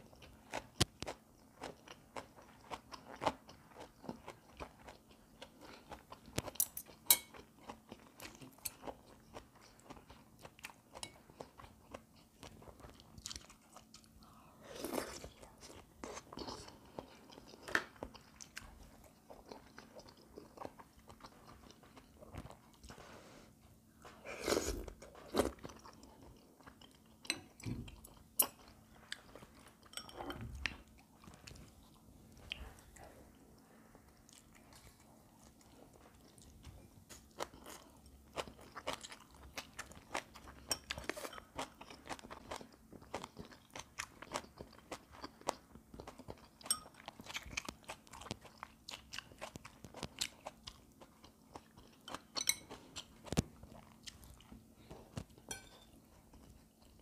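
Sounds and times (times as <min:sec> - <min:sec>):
faint steady hum: 0:00.0 - 0:57.0
person chewing and crunching food: 0:00.0 - 0:57.0.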